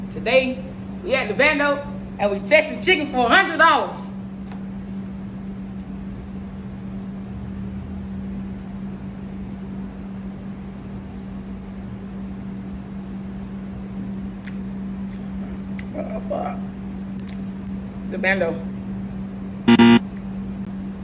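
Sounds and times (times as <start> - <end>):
machine hum: 0.0 - 3.1, 19.6 - 20.6.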